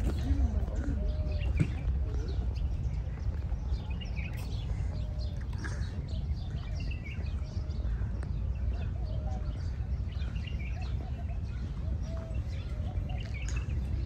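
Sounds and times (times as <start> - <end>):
birds chirping and calling: 0.0 - 14.0.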